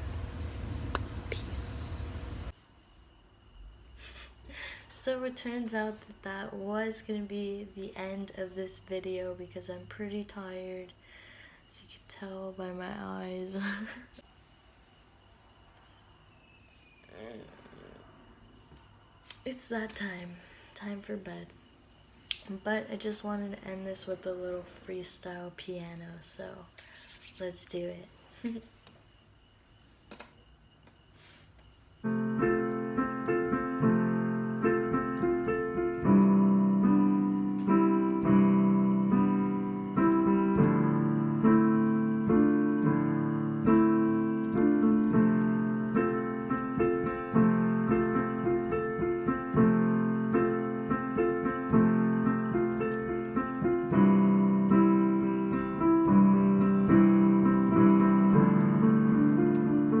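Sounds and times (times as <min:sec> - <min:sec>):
improvised piano chords and melody: 0:32.0 - 1:00.0.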